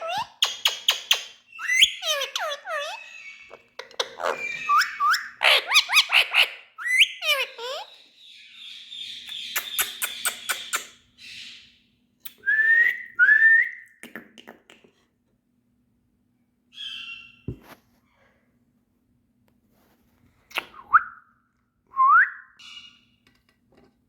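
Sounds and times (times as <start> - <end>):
parrot whistling and chirping: 0.0 - 11.7, 16.8 - 17.5, 22.1 - 23.0.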